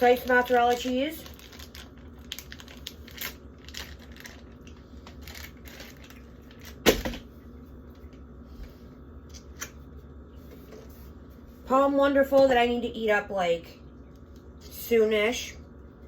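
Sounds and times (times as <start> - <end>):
packaging clicks and rustles: 0.0 - 6.8
steady low hum: 0.0 - 16.0.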